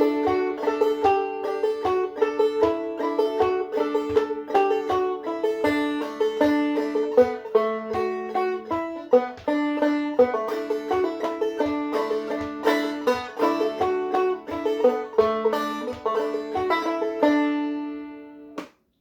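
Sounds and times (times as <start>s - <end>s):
banjo playing old-time tune: 0.0s - 18.7s.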